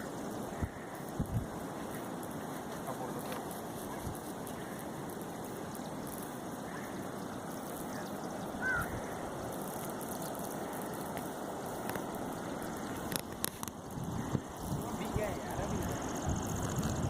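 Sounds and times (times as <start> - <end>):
water rushing: 0.0 - 17.0
short bird call: 7.9 - 9.0.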